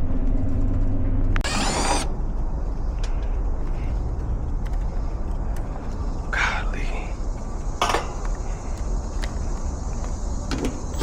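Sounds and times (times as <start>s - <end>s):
steady background hiss: 4.9s - 11.0s.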